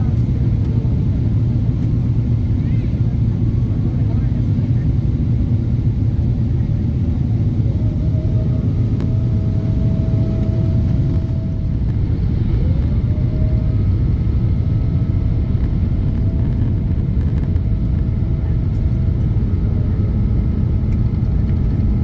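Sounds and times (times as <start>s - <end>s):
vehicle interior rumble: 6.1s - 22.0s
faint whine rising in pitch: 7.7s - 18.5s.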